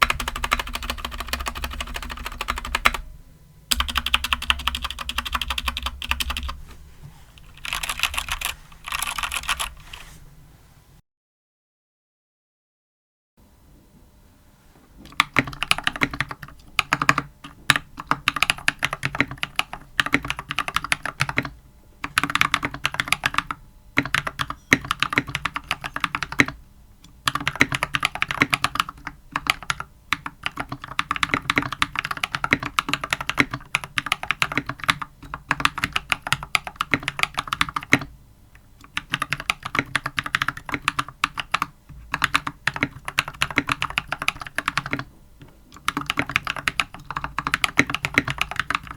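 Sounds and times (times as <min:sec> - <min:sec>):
typing on mechanical keyboard: 0:00.0 - 0:03.0, 0:03.7 - 0:06.6, 0:07.4 - 0:09.9, 0:15.1 - 0:26.6, 0:27.2 - 0:38.1, 0:38.8 - 0:45.1, 0:45.7 - 0:48.9.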